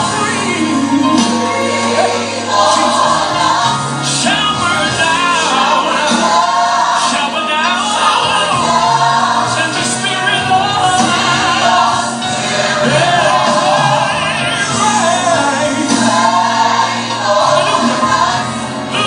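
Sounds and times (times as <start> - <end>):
band accompaniment: 0.0 - 19.0
choir singing: 0.0 - 19.0.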